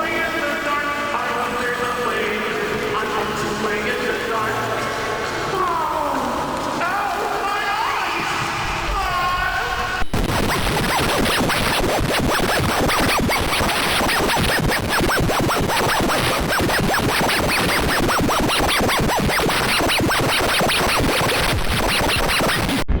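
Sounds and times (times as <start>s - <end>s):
distorted glitch stutter: 9.7s - 23.0s.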